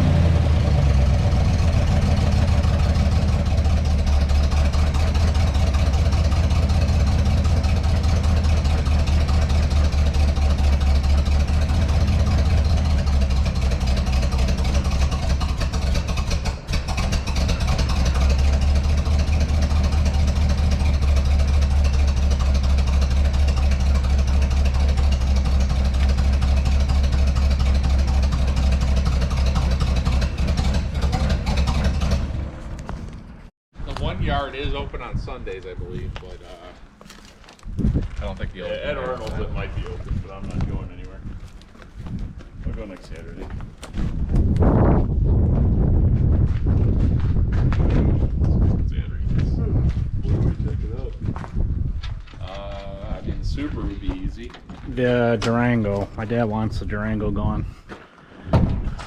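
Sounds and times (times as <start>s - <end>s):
large engine idling: 0.0s - 33.5s.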